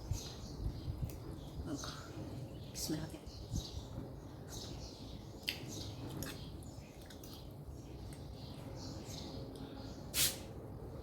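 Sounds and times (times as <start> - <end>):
chewing and smacking mouth noises: 5.4 - 8.4.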